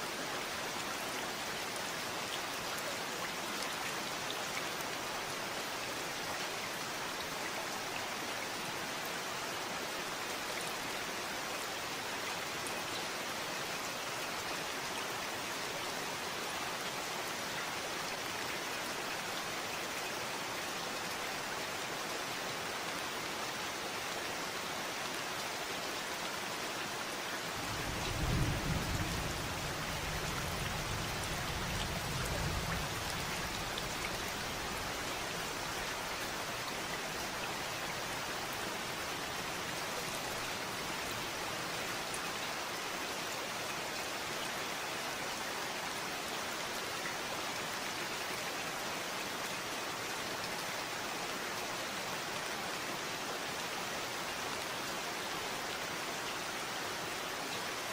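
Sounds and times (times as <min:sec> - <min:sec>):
steady rain falling: 0:00.0 - 0:57.9
low rumble of thunder: 0:27.6 - 0:33.9.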